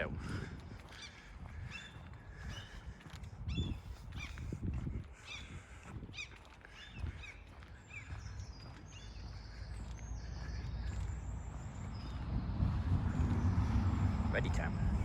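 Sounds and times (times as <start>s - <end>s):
small birds chirping: 0.3s - 4.5s, 5.1s - 15.0s
low rumble: 10.4s - 15.0s.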